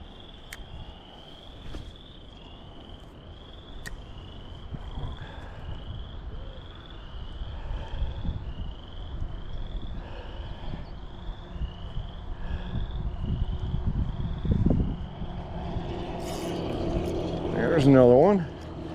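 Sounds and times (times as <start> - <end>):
wind rumbling on microphone: 0.0 - 18.9.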